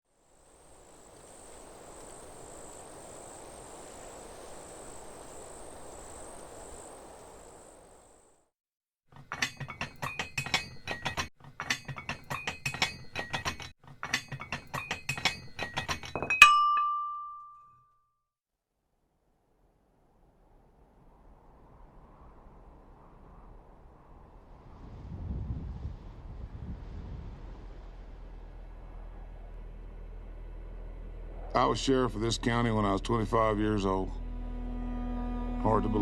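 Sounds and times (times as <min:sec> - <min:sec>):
soft hiss: 0:00.1 - 0:08.5
high pulsing insect chirring: 0:00.2 - 0:08.4.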